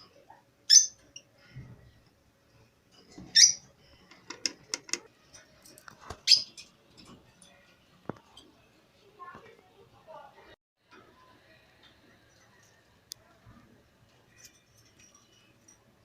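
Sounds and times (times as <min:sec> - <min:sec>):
caged birds calling: 0:00.6 - 0:01.4, 0:02.9 - 0:07.7.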